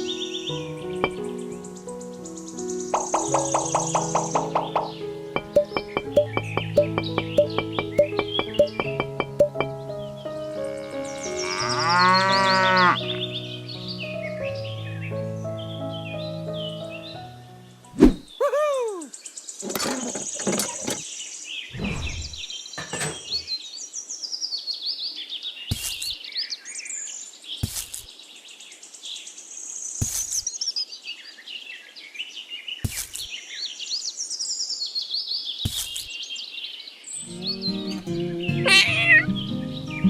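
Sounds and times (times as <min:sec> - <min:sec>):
birds chirping and singing: 0:00.0 - 0:14.9, 0:36.2 - 0:40.0
sharp taps or knocks: 0:03.0 - 0:09.8.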